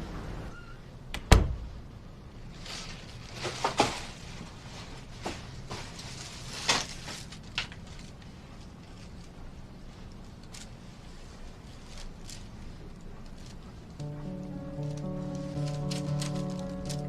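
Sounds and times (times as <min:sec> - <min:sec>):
rustles: 0:02.5 - 0:14.0.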